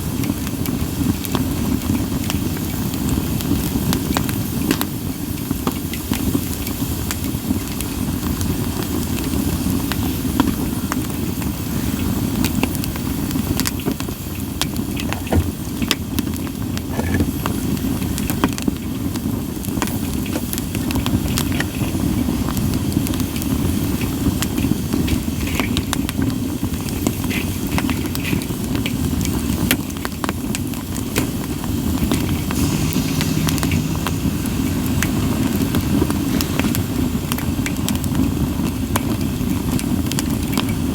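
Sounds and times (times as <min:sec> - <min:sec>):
campfire crackling and popping: 0:12.1 - 0:34.2, 0:34.9 - 0:40.9.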